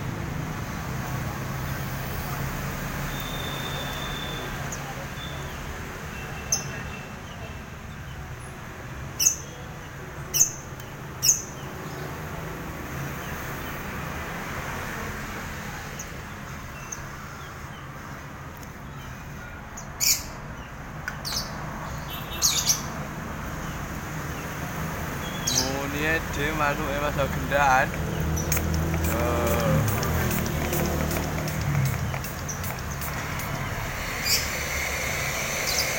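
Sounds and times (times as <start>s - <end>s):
birds chirping and squawking: 19.9s - 20.4s, 21.2s - 23.0s, 25.2s - 35.9s.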